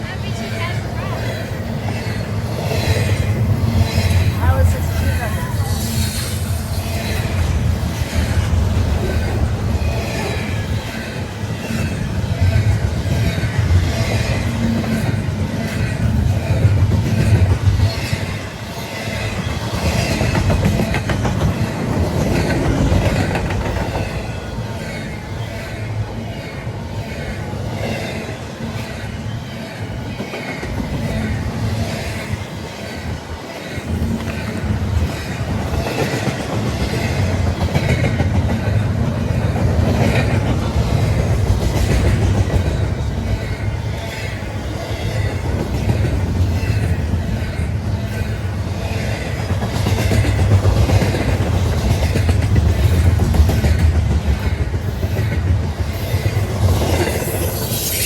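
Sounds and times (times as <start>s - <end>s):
low train rumble: 0.0s - 58.0s
train wheels clattering over rail joints: 6.2s - 57.8s.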